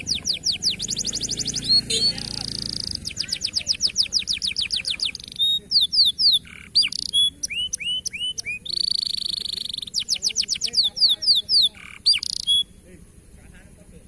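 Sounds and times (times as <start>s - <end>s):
canary singing: 0.0s - 13.3s.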